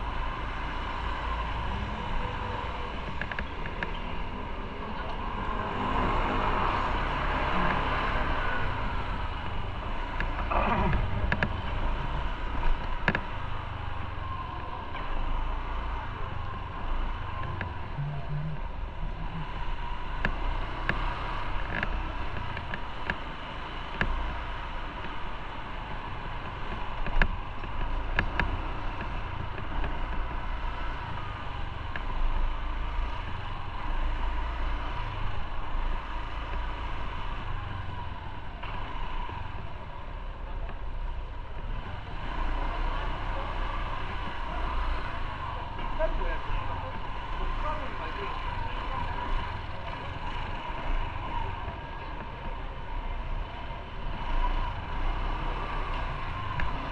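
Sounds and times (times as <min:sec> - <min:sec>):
motorcycle engine and road rumble: 0:00.0 - 0:56.9
steady whine: 0:07.6 - 0:24.2.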